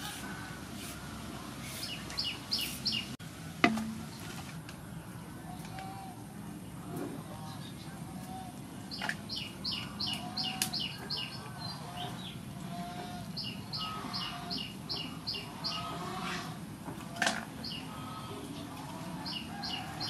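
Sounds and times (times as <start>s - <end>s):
bird chirping: 1.6s - 3.2s, 7.4s - 16.2s.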